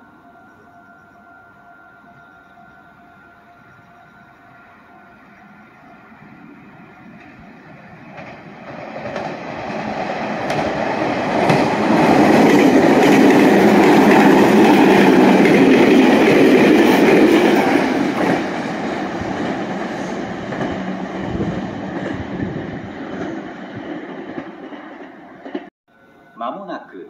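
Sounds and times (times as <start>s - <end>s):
electric train passing: 0.0s - 27.0s
wheels clicking over rail joints: 7.0s - 25.7s.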